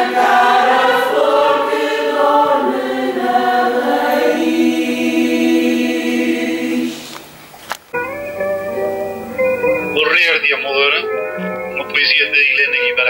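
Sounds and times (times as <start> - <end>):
choir singing held chords: 0.0 - 7.4.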